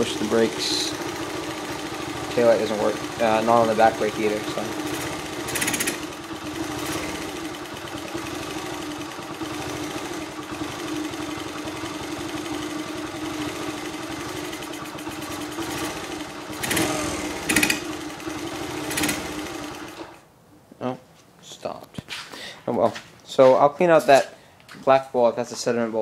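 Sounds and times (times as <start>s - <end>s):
motorcycle engine idling: 0.0s - 20.1s
engine revving bursts: 0.0s - 20.2s.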